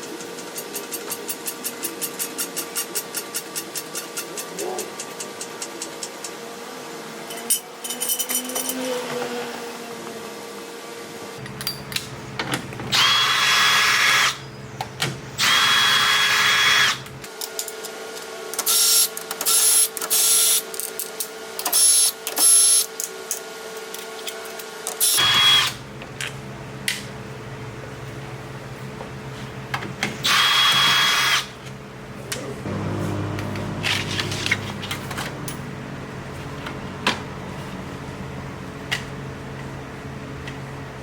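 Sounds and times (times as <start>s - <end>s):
power tool whirring: 12.9s - 14.4s, 15.4s - 17.1s, 30.2s - 31.6s, 32.6s - 35.7s.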